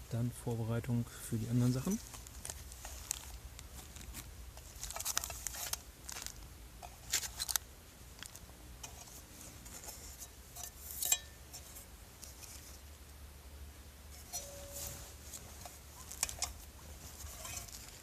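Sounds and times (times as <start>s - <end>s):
food packaging rustling: 1.8s - 7.6s, 14.4s - 18.0s
cooking gear clinking: 10.5s - 11.8s, 14.2s - 15.0s.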